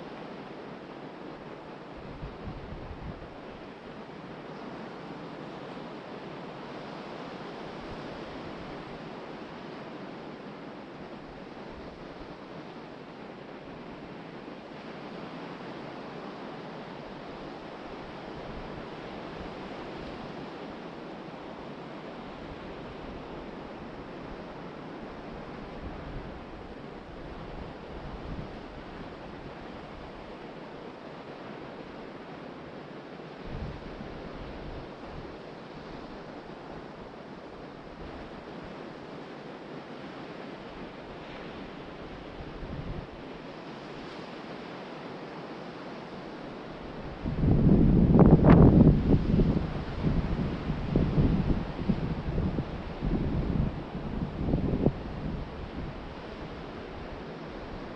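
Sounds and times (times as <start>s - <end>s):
wind buffeting microphone: 47.0s - 57.2s.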